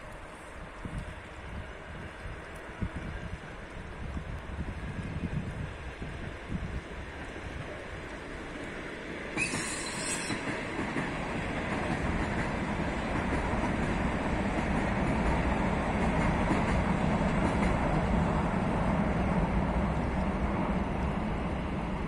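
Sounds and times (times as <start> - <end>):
train wheels clattering on bridge: 8.1 - 18.6
short high-pitched hiss: 9.4 - 10.5.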